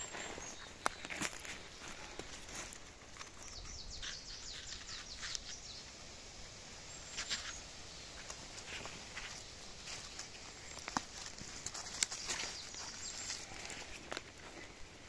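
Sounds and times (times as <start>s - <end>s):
twigs and leaf litter crackling: 0.0s - 15.0s
songbird singing falling notes: 3.1s - 6.0s, 9.2s - 13.7s.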